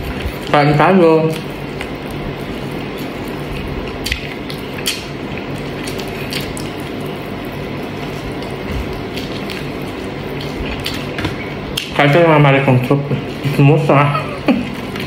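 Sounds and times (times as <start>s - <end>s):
steady low hum: 0.0s - 15.0s
person chewing: 1.2s - 12.0s, 12.7s - 15.0s
wet mouth clicks and smacks: 3.6s - 6.9s.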